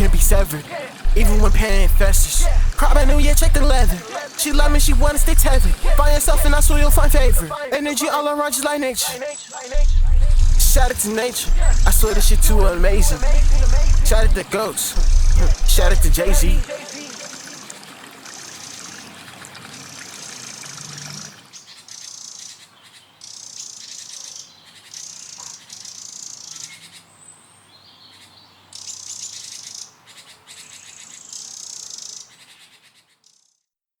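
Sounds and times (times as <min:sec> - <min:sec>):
buzzy chirping trills: 0:00.0 - 0:07.5, 0:09.2 - 0:17.1.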